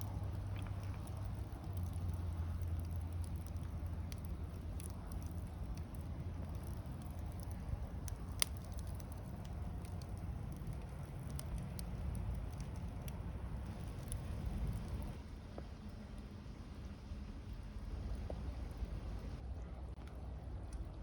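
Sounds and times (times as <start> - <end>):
wood fire crackling and popping: 0.0 - 16.3
low rumble: 0.0 - 21.0.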